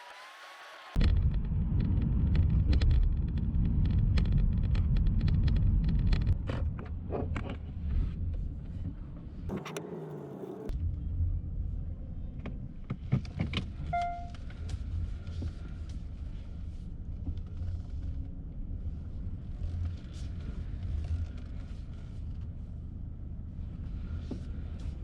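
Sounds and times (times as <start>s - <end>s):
car rumbling: 1.0s - 25.0s
clicks: 9.5s - 10.7s
short beep: 13.9s - 14.4s.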